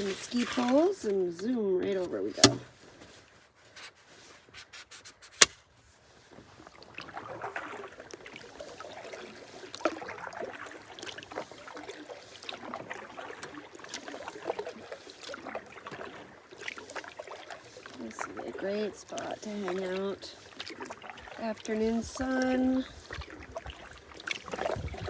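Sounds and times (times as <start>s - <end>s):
canoe hull scraping: 0.0s - 25.0s
paddle knocking against canoe: 1.8s - 2.7s.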